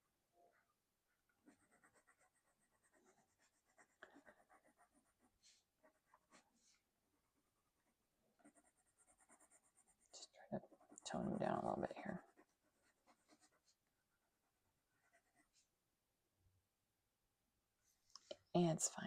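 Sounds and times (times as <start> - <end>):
pencil scratching on paper: 1.4 - 6.8, 7.8 - 13.9, 14.9 - 15.7.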